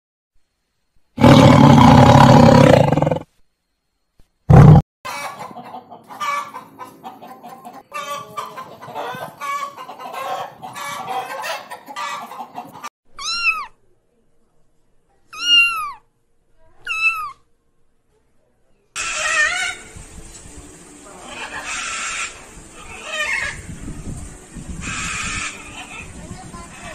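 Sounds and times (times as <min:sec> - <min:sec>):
lion roaring: 0:01.2 - 0:03.2, 0:04.5 - 0:04.8
hens clucking: 0:04.6 - 0:12.9, 0:21.1 - 0:23.7, 0:24.8 - 0:26.9
cat meowing: 0:13.2 - 0:13.8, 0:15.3 - 0:16.0, 0:16.8 - 0:17.4.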